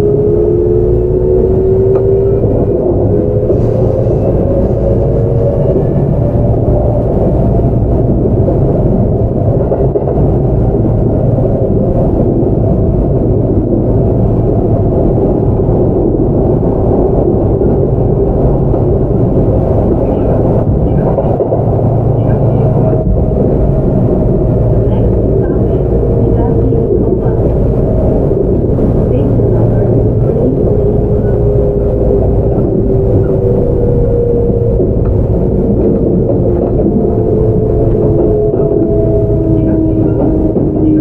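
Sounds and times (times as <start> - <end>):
wheels rumbling on rails: 0.0 - 41.0.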